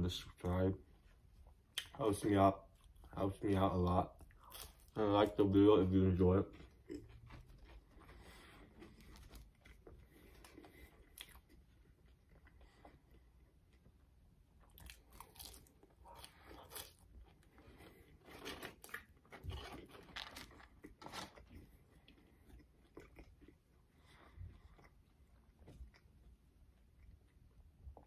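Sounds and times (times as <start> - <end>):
chewing crispy fries: 1.7 - 28.0.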